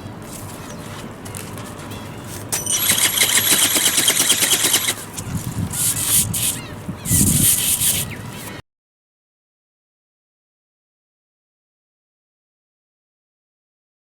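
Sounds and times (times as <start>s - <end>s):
small motor whining: 2.6s - 8.1s
wings flapping: 2.6s - 8.1s
wind buffeting microphone: 4.7s - 8.3s.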